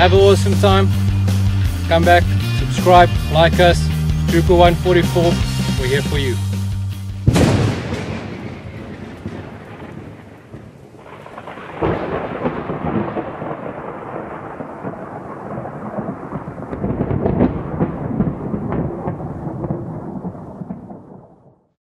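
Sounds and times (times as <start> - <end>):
low rolling rumble with crackles: 7.2 - 21.6.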